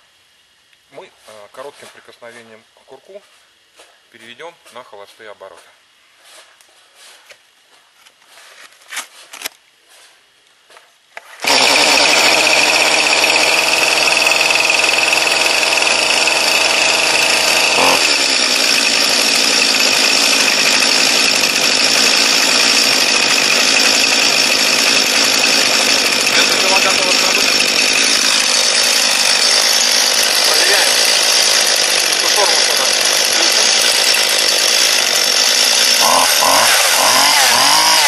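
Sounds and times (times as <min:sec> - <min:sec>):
chainsaw running at high revs: 0:11.4 - 0:38.0.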